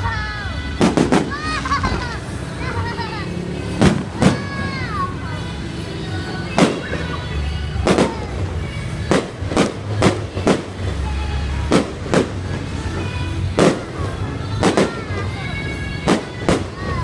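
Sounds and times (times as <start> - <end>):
loud music: 0.0 - 17.0
fireworks bangs: 0.7 - 17.0.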